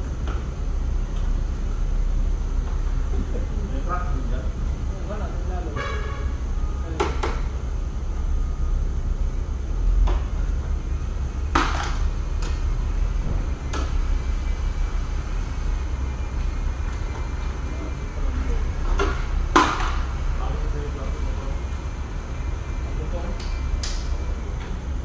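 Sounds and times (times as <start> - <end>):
steady low rumble: 0.0 - 25.0
knocks and clanks: 10.0 - 20.4.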